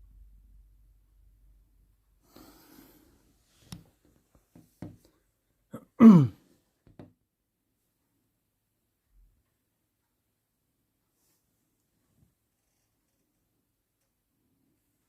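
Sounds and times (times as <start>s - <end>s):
person breathing softly: 2.2s - 3.8s.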